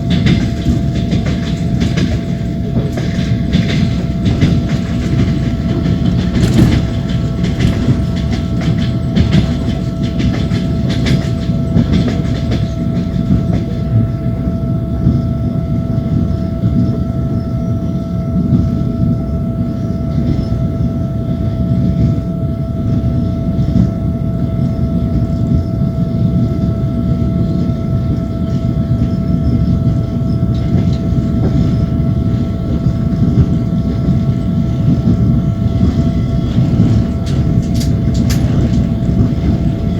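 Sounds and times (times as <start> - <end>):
train wheels clacking: 0.0 - 14.1, 27.6 - 39.9
constant whine: 0.0 - 39.9
train rolling rumble: 0.0 - 39.9.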